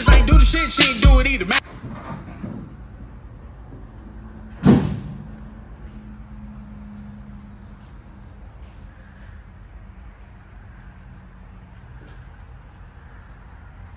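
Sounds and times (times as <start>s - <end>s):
faint low hum: 8.9s - 13.9s.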